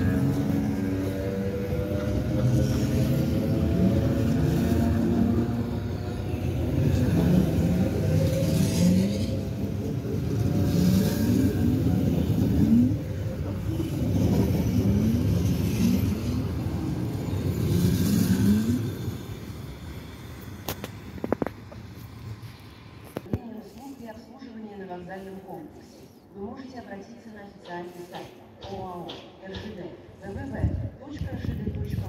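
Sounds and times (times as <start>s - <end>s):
electric train rumbling past: 0.0s - 23.2s.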